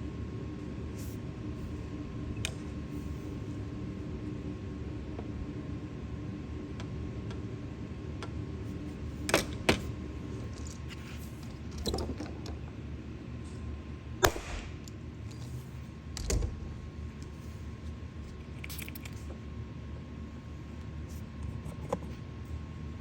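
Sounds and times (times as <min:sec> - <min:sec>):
faint high hum: 0:00.0 - 0:23.0.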